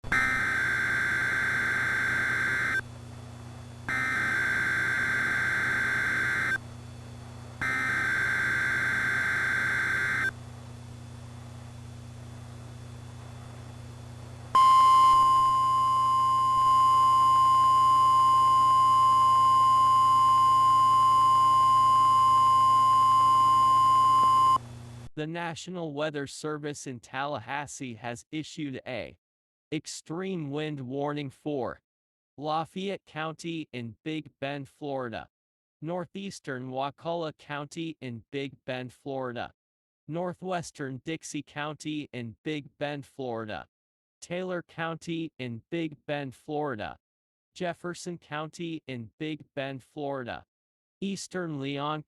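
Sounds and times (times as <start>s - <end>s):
steady warning alarm tone: 0.1s - 2.8s, 3.9s - 6.6s, 7.6s - 10.4s, 14.6s - 24.6s
screeching digital data bursts: 0.2s - 2.8s, 3.9s - 6.6s.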